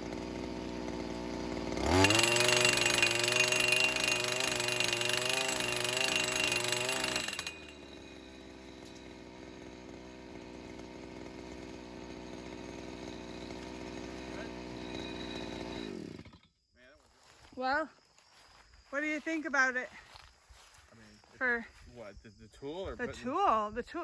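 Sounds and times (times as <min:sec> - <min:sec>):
post driver engine running: 0:00.0 - 0:16.2
hammer pounding steel post: 0:02.0 - 0:09.4.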